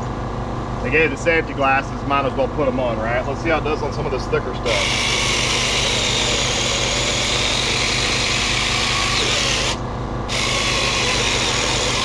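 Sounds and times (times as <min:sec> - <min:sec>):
mini chainsaw cutting branch: 0:04.7 - 0:12.0.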